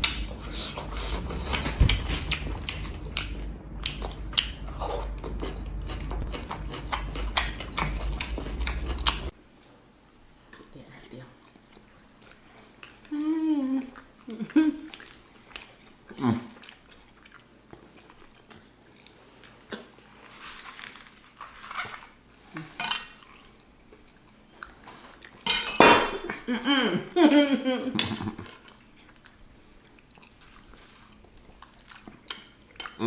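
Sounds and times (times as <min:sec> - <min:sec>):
chewing: 0:00.0 - 0:09.7, 0:10.5 - 0:25.5, 0:28.4 - 0:33.0
cutlery clinking on a plate: 0:25.5 - 0:26.2.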